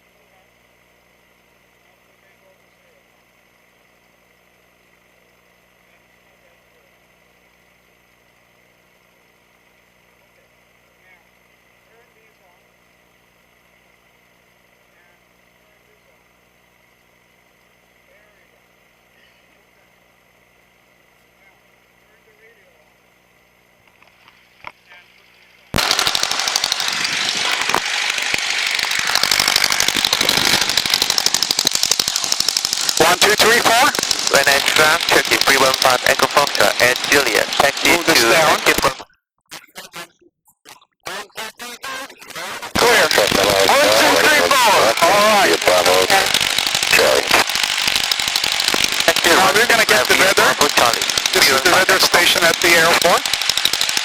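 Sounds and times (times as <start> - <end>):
constant tones: 23.8 - 54.0
airplane engine drone: 23.9 - 39.0, 42.2 - 53.5.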